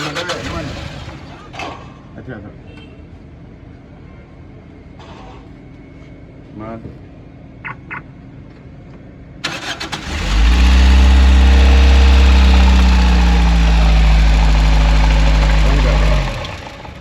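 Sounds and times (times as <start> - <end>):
car engine cranking and starting: 0.0 - 1.9, 9.4 - 17.0
car engine idling: 9.4 - 17.0.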